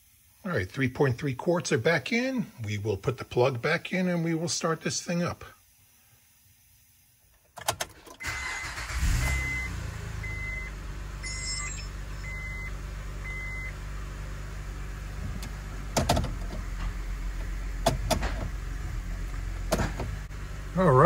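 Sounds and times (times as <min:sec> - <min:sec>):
car engine starting and idling: 0:07.5 - 0:21.0
chime beeping: 0:11.2 - 0:12.6.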